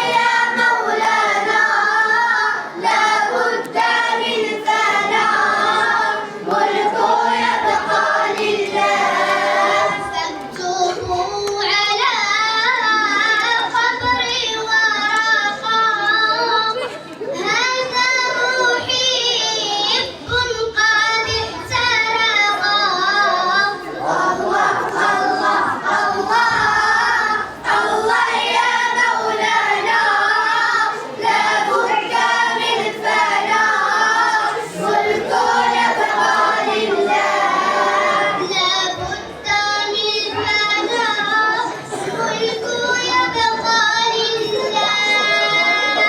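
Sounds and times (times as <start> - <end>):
child singing: 0.0 - 46.0.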